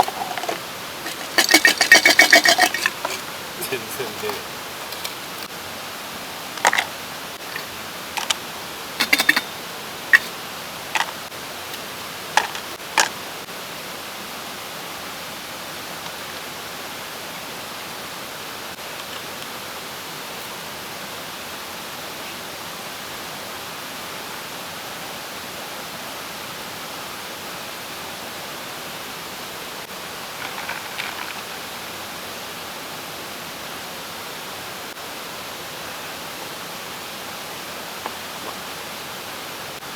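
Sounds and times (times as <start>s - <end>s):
mountain stream rushing: 0.0s - 39.9s
sharp clicks and knocks: 9.0s - 9.5s.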